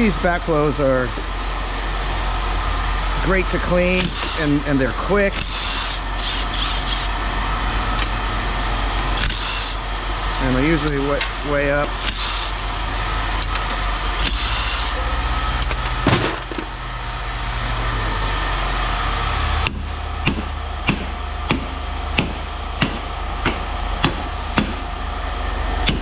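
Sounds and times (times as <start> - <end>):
low engine-like hum: 0.0 - 26.0
hammer-like knocks: 19.7 - 24.9.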